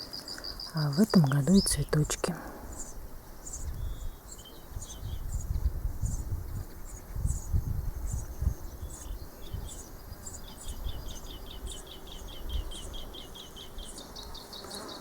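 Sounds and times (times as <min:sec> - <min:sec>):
insects chirping: 0:00.0 - 0:15.0
low rumble on microphone: 0:03.6 - 0:11.6.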